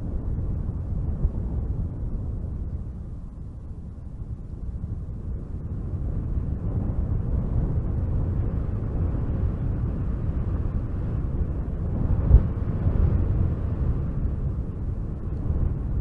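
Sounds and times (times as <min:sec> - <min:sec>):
wind blowing: 0:04.8 - 0:16.0.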